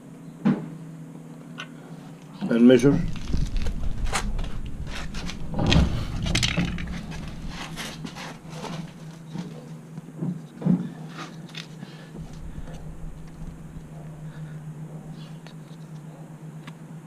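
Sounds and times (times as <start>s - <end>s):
steady low hum: 0.0s - 17.0s
hand tools clicking and scraping: 3.0s - 9.6s.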